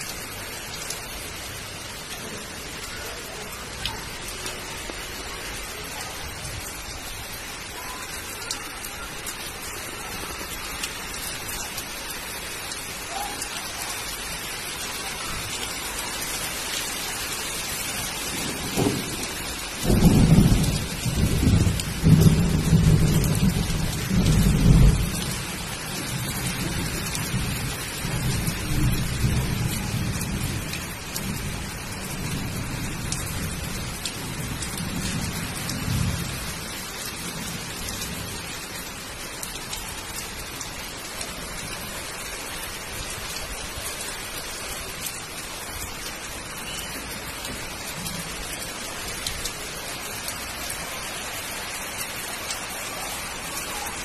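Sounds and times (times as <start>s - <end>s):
rain on concrete rooftop: 0.0s - 54.0s
low rumble of thunder: 17.9s - 38.6s.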